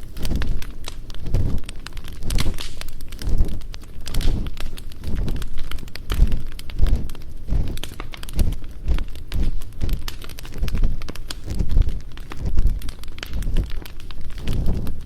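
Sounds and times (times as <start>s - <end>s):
campfire crackling: 0.0s - 15.0s
rubbing on a microphone: 0.0s - 15.0s.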